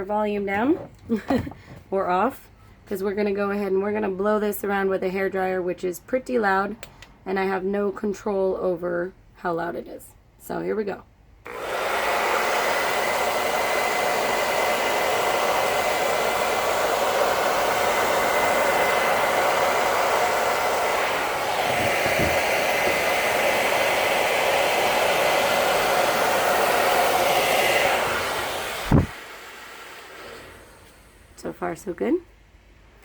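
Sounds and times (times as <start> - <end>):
hair dryer running: 11.5 - 31.4
knock: 21.7 - 23.0.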